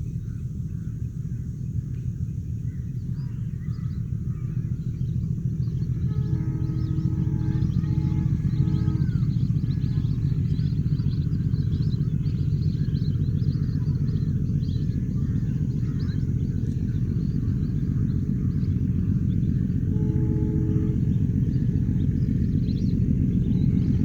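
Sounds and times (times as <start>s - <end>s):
birds chirping: 0.0s - 24.0s
train rumbling: 0.0s - 24.0s.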